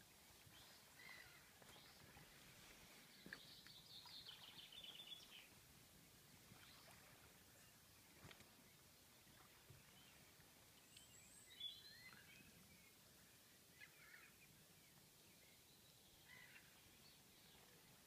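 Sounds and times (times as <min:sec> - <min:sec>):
faint birdsong chirps and whistles: 0:02.9 - 0:05.6, 0:06.5 - 0:17.7.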